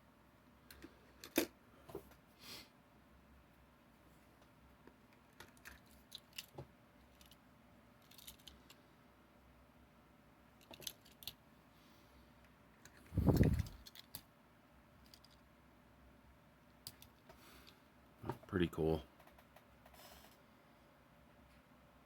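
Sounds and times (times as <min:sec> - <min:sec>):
toy trucks clicking when handled: 0:08.0 - 0:08.8, 0:10.6 - 0:11.4.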